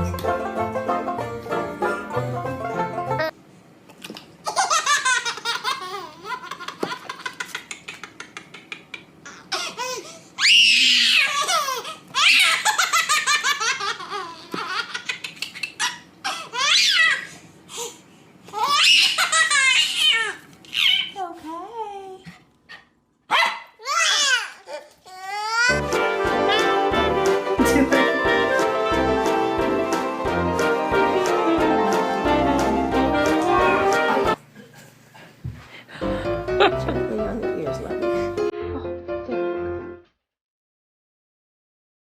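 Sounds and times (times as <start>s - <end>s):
banjo music: 0.0s - 3.3s, 25.7s - 34.4s, 36.1s - 39.5s
child laughing: 4.4s - 10.1s, 10.8s - 17.3s, 18.6s - 21.2s, 27.6s - 28.2s.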